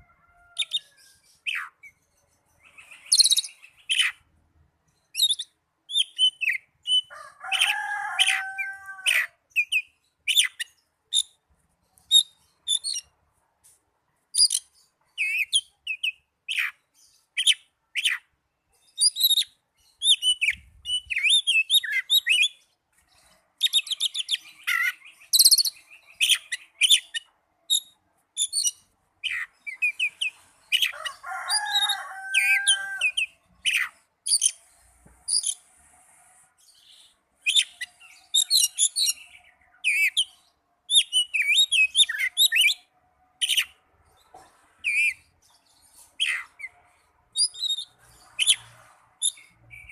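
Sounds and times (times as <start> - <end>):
bird singing whistled phrases and trills: 2.6 - 4.2, 5.1 - 7.1, 14.4 - 16.8, 18.9 - 22.6, 23.7 - 30.9, 37.4 - 43.7.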